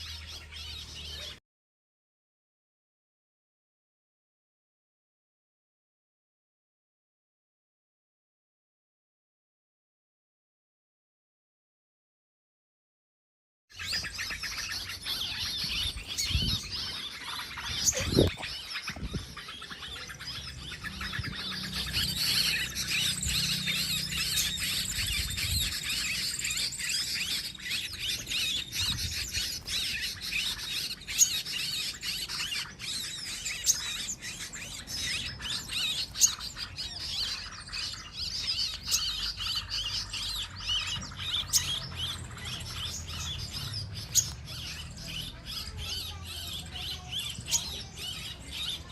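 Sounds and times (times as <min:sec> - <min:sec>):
small birds chirping: 0:00.0 - 0:01.4, 0:13.7 - 0:48.9.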